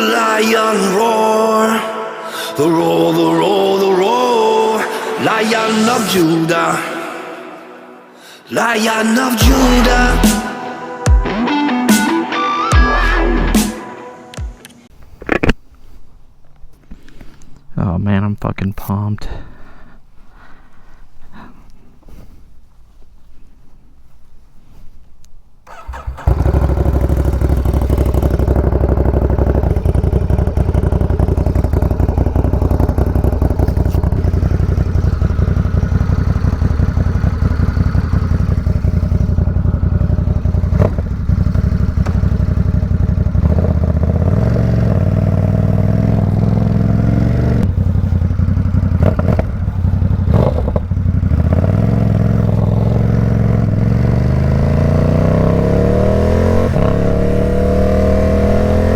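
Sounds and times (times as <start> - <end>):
motorcycle engine idling and revving: 9.4 - 10.4, 25.6 - 58.9.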